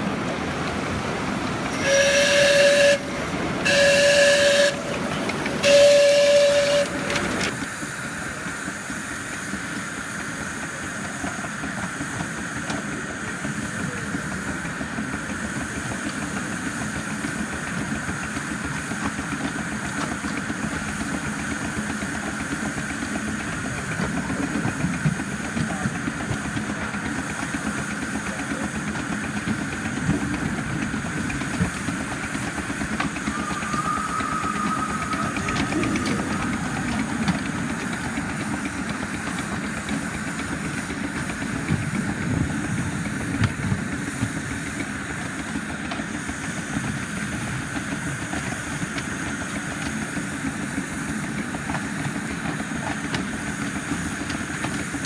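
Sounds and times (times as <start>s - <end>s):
steam locomotive hissing and rumbling: 0.0s - 55.0s
steam whistle blasts: 1.8s - 7.5s, 32.9s - 38.1s.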